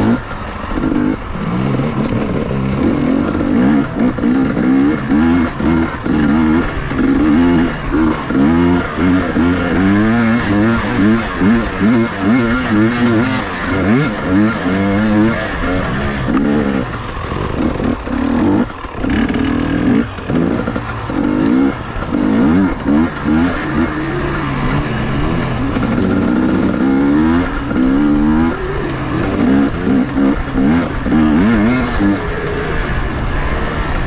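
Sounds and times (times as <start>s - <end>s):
two-stroke motorcycle engine revving: 0.0s - 34.0s.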